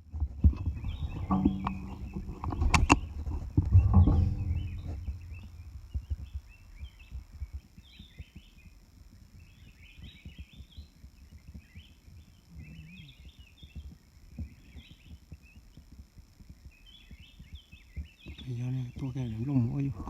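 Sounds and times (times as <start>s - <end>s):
birds chirping: 0.0s - 20.0s
handling noise knocking and rustling: 0.1s - 6.6s.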